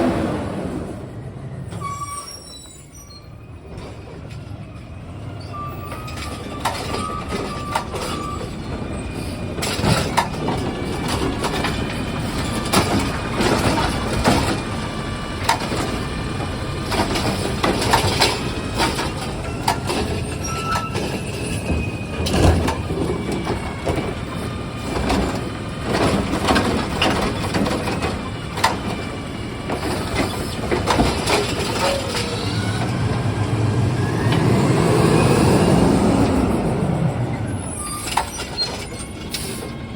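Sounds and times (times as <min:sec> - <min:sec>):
garbage truck engine and machinery: 0:00.0 - 0:39.9
faint squeals: 0:01.6 - 0:03.6, 0:18.9 - 0:25.0, 0:30.0 - 0:33.2, 0:35.0 - 0:39.9
sharp knocks and clatters: 0:09.6 - 0:14.8, 0:15.4 - 0:24.2, 0:24.8 - 0:32.3.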